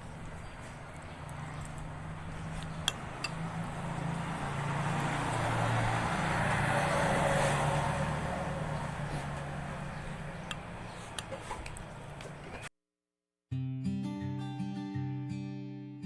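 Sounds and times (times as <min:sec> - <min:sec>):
motor vehicle humming: 0:00.0 - 0:12.7.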